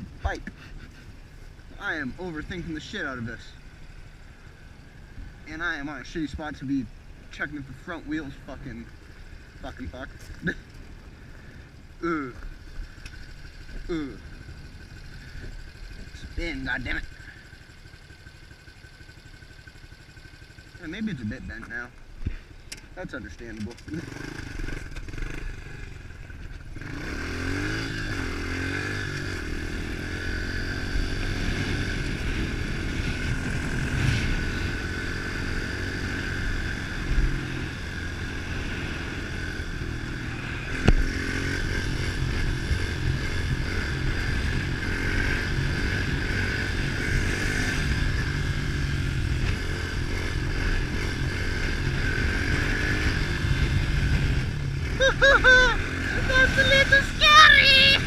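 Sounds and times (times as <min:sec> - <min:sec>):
motorbike engine revving: 0:23.6 - 0:58.0.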